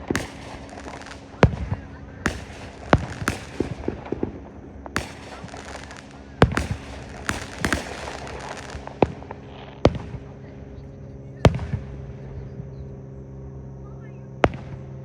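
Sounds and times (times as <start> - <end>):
fireworks crackling: 0.0 - 10.8
fireworks booming: 0.0 - 12.6, 14.4 - 14.9.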